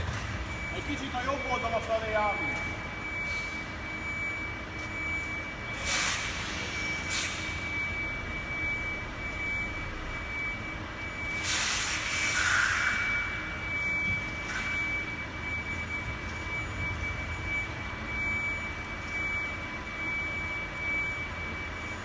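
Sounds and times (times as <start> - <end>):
lifting truck engine running: 0.0 - 1.9.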